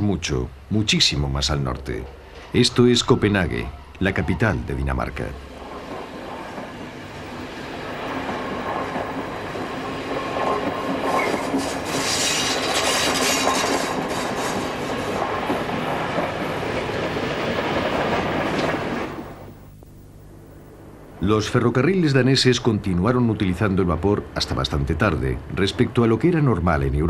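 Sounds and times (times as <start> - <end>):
train coaches rushing past: 1.8 - 19.4.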